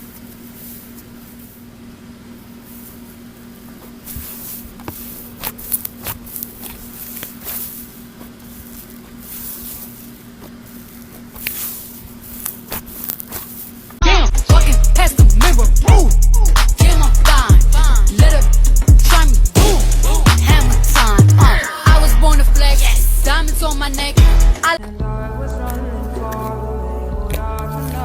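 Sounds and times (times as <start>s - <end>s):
loud hip-hop music: 14.0s - 28.0s.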